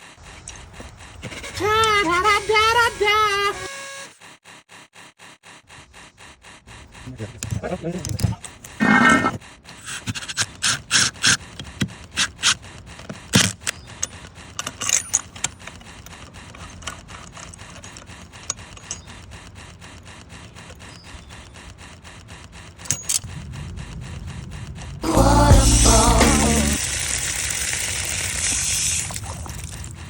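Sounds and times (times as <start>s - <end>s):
scraping and rubbing strokes: 0.0s - 26.8s
faint ticking: 15.2s - 30.0s.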